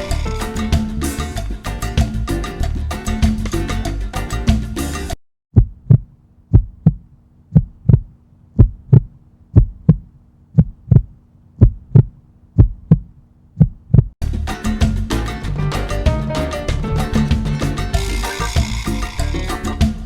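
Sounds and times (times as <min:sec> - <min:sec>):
salsa music: 0:00.0 - 0:05.2, 0:14.2 - 0:20.0
heartbeat thumps: 0:05.5 - 0:14.2.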